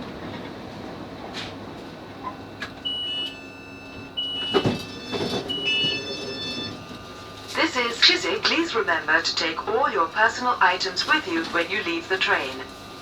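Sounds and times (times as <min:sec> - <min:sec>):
sliding doors clunking: 0:00.0 - 0:10.0
short high door beeps: 0:02.2 - 0:07.1.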